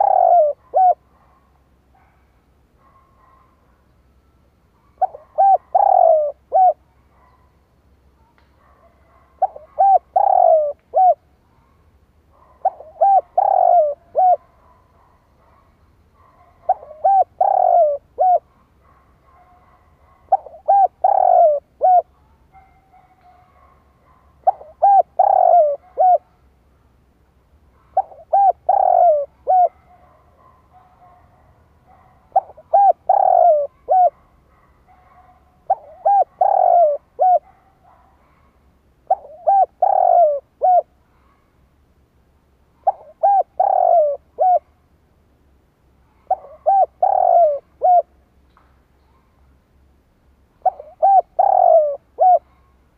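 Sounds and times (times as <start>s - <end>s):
dove cooing: 0.0s - 1.4s, 4.8s - 7.4s, 8.6s - 11.7s, 12.4s - 15.6s, 16.2s - 26.4s, 27.8s - 34.3s, 35.0s - 38.4s, 39.0s - 41.4s, 42.8s - 44.7s, 46.1s - 48.2s, 50.6s - 52.6s.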